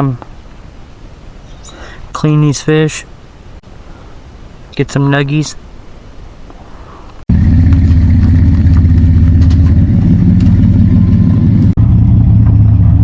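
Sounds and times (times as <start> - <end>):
truck engine and road noise: 5.6 - 13.0.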